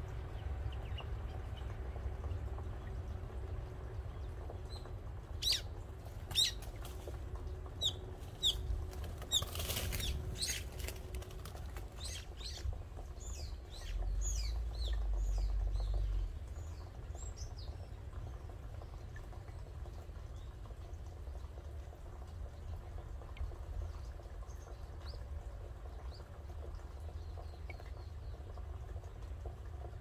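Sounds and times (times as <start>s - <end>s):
small birds chirping: 0.0s - 21.6s
flurry of wingbeats: 8.9s - 12.2s.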